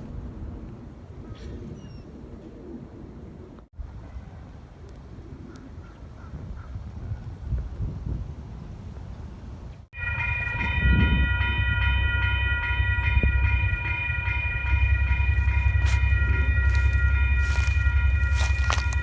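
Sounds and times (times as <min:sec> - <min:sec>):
low rumble: 0:10.0 - 0:19.0.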